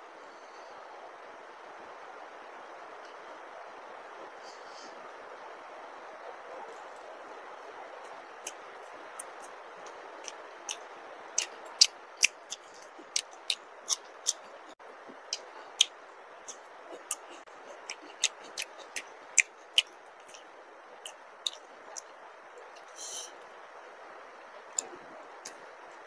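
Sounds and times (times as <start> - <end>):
heavy rain hiss: 0.0 - 26.0
chewing with mouth smacks: 8.0 - 23.0.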